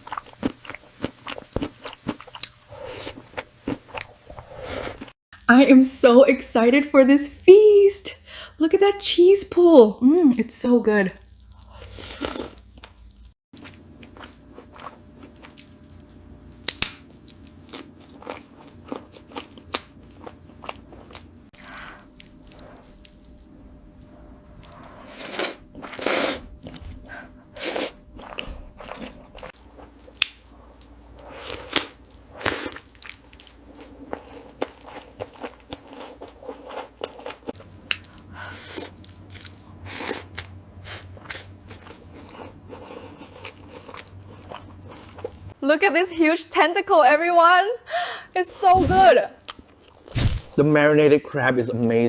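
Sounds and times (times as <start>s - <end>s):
chewing seafood: 0.0s - 5.2s, 11.2s - 45.6s.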